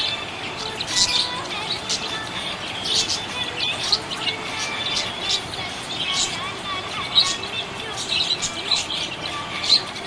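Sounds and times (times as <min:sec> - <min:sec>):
budgerigar chirping: 0:00.0 - 0:06.4.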